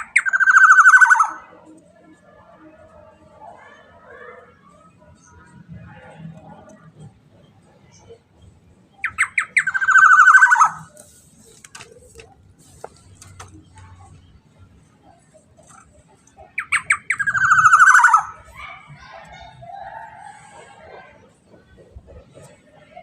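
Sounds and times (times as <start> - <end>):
oriole calling: 9.0 - 11.0, 16.4 - 18.6.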